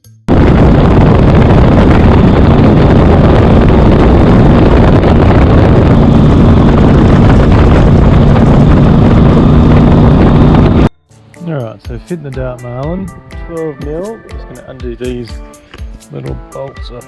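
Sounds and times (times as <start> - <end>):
motorcycle engine running: 0.3 - 10.9
wind rushing over microphone: 0.3 - 10.9.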